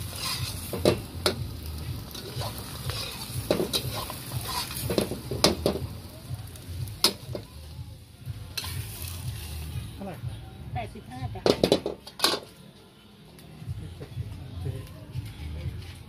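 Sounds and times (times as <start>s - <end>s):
metal spatula scraping a wok: 0.0s - 1.4s, 2.0s - 5.8s, 8.5s - 9.7s
omelette sizzling in a wok: 0.0s - 10.2s.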